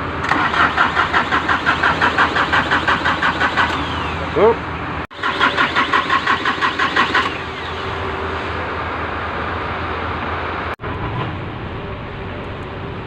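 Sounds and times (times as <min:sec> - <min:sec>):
steady mechanical noise: 0:00.0 - 0:13.0
starter motor cranking engine: 0:00.2 - 0:04.2, 0:05.1 - 0:07.7.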